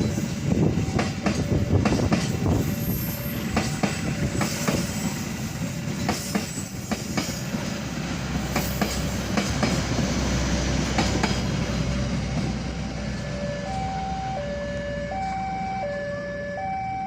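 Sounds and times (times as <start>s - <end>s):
wheels clacking over rail joints: 0.0s - 13.4s
passenger train rumbling: 0.0s - 17.0s.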